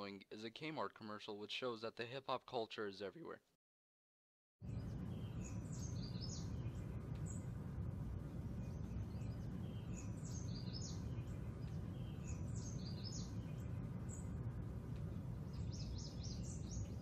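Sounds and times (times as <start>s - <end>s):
birds chirping: 4.6s - 7.6s, 8.2s - 17.0s
low background rumble: 4.6s - 17.0s.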